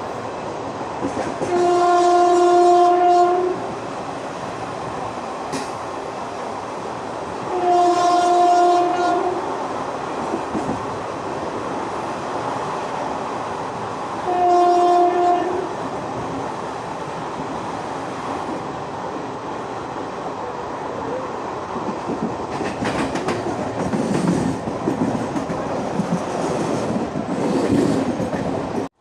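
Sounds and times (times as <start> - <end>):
train coaches running on track: 0.0 - 29.0
locomotive horn blasts: 1.5 - 3.6, 7.5 - 9.4, 14.3 - 15.7.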